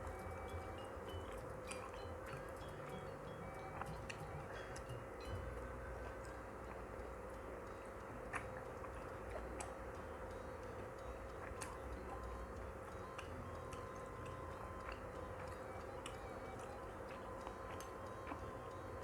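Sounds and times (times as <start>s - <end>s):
faint steady hum: 0.0s - 19.0s
person chewing dumplings: 7.9s - 9.9s, 11.3s - 19.0s.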